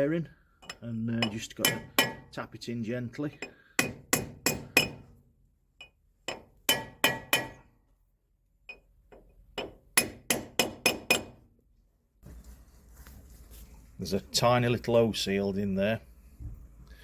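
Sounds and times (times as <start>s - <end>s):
hammer tapping metal: 0.6s - 2.3s, 3.4s - 5.2s, 5.8s - 7.6s, 8.7s - 11.4s.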